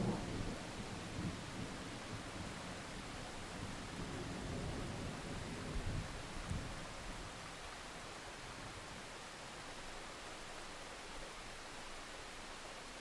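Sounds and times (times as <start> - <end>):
low rumble of thunder: 0.0 - 6.8.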